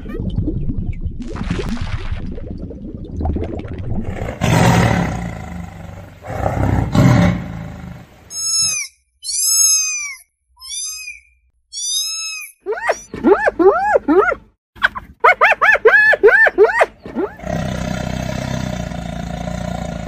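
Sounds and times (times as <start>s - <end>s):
large animal roaring: 4.1s - 8.1s, 17.3s - 20.0s
short high-pitched calls: 8.3s - 13.1s.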